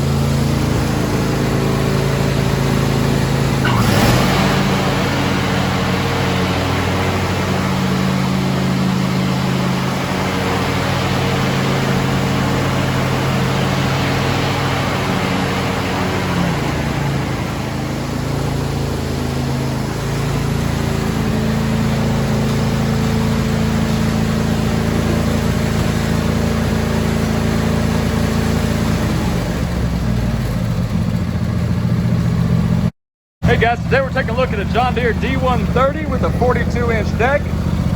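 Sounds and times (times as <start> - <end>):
lawn tractor engine running: 0.0 - 37.9.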